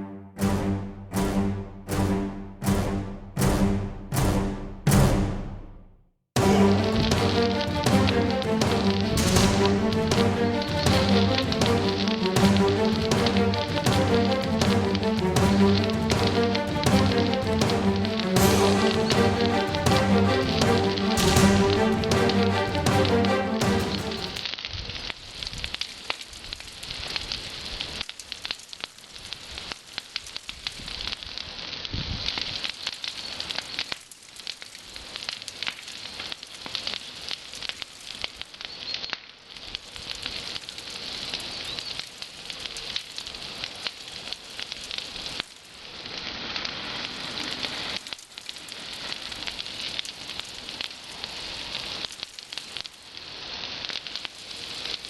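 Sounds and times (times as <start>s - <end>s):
bonfire crackling: 6.4s - 55.0s.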